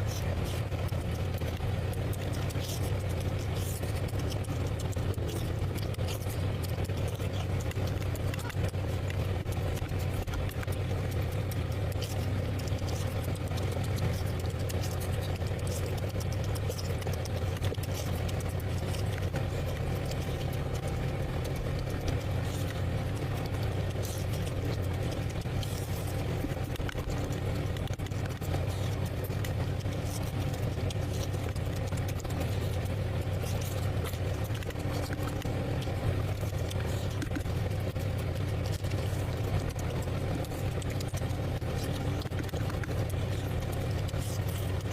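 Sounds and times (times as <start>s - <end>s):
steady low hum: 0.0s - 44.9s
wet chewing and lip-smacking: 0.0s - 44.9s.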